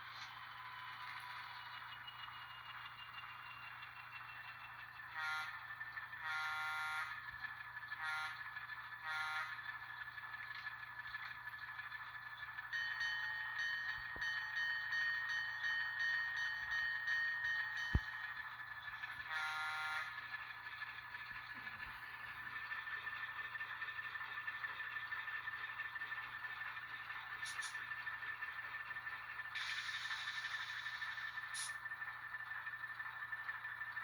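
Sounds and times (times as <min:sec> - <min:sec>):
locomotive horn blasts: 0:05.1 - 0:05.6, 0:06.2 - 0:07.1, 0:08.0 - 0:08.4, 0:09.0 - 0:09.6, 0:19.3 - 0:20.1
bell ringing: 0:12.7 - 0:18.7.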